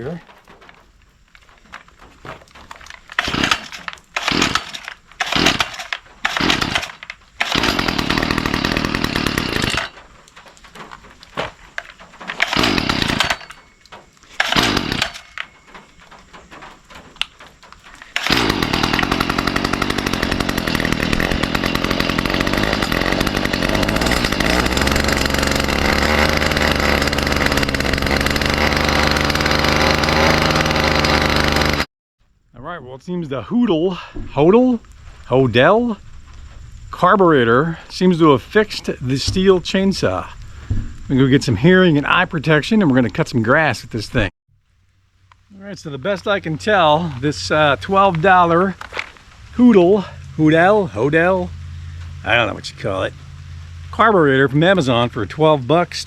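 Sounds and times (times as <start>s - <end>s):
string trimmer pull cord: 2.7s - 10.9s, 11.8s - 13.7s, 14.3s - 15.8s, 17.2s - 31.9s
string trimmer engine running: 3.1s - 10.0s, 12.3s - 13.6s, 14.4s - 15.5s, 18.0s - 31.9s.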